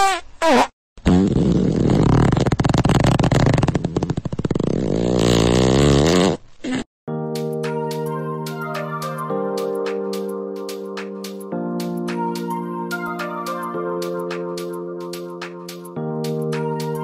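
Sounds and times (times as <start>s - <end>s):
air escaping from balloon neck: 0.0s - 6.9s.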